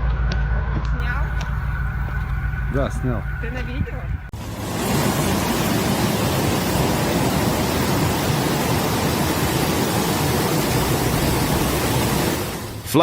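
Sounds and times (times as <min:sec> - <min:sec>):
floodwater rushing: 0:04.3 - 0:13.0.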